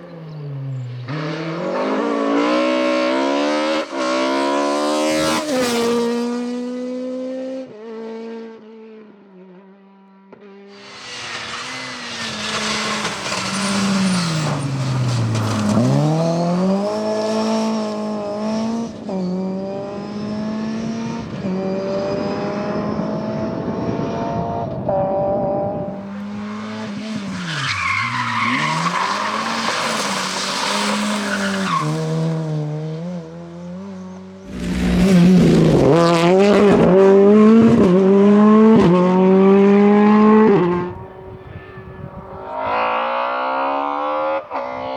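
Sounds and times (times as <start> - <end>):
rally car engine revving: 10.4 - 41.7
tyres sliding and hissing: 10.8 - 16.2.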